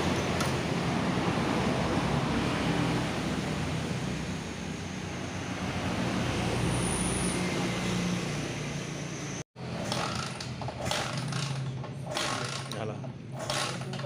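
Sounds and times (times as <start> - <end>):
motorcycle engine running: 9.6 - 14.0.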